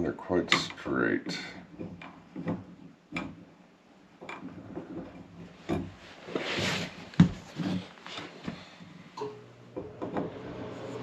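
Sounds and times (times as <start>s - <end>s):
rustling scrape: 4.6s - 8.8s.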